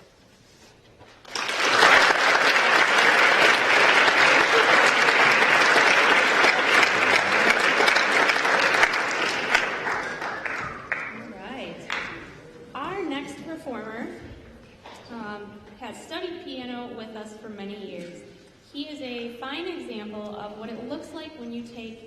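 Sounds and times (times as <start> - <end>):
audience applauding: 1.2 - 12.3.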